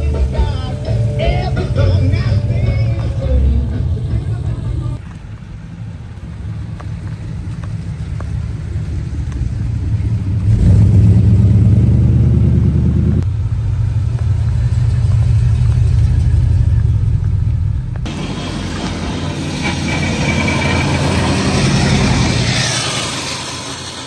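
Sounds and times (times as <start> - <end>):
car engine rumble: 0.0 - 24.0.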